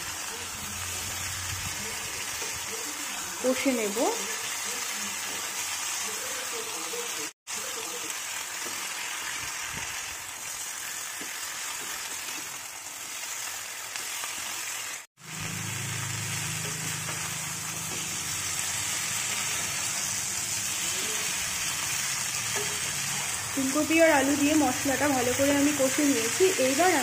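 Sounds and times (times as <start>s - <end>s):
vegetables sizzling in oil: 0.0s - 27.0s
metal spatula stirring: 16.4s - 23.3s.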